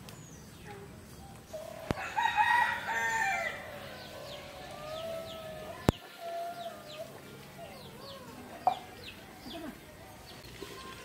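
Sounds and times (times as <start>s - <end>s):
small birds chirping: 0.0s - 11.0s
rooster crowing: 1.6s - 6.8s.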